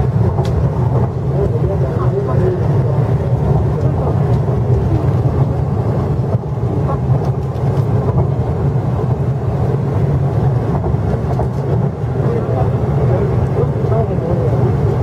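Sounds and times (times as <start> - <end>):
train low rumble inside carriage: 0.0 - 15.0.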